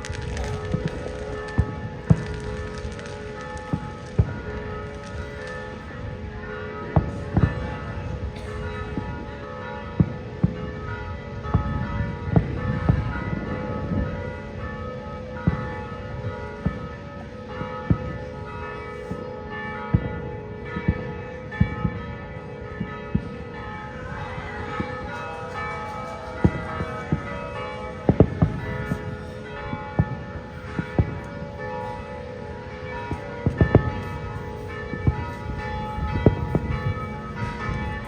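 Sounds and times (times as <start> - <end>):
fireworks banging: 0.0 - 9.2, 23.1 - 38.0
ringing bell-like tones: 23.6 - 38.0.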